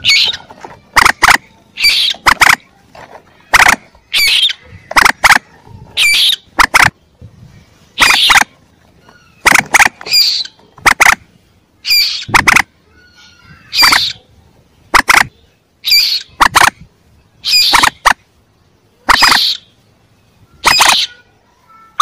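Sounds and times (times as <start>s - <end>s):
moorhen chick calls: 0.0s - 2.6s, 3.5s - 7.0s, 7.9s - 11.2s, 11.8s - 14.3s, 14.9s - 16.8s, 17.4s - 18.2s, 19.0s - 19.8s, 20.5s - 21.3s.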